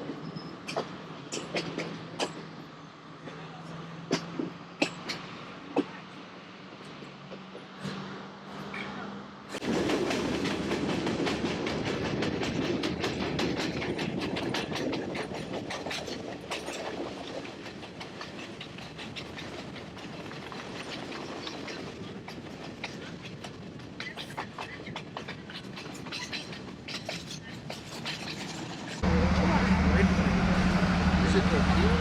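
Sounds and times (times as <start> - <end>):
train wheels clacking on rails: 9.6 - 32.0.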